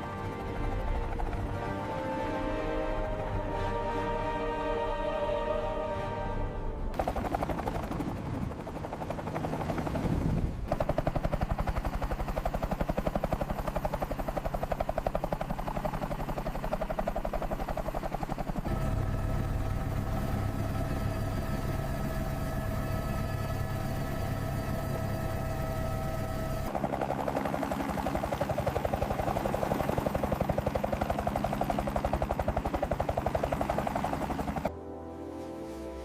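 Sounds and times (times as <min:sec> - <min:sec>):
helicopter rotor chopping: 0:00.0 - 0:04.0, 0:06.9 - 0:34.7
engine whine: 0:13.9 - 0:34.7.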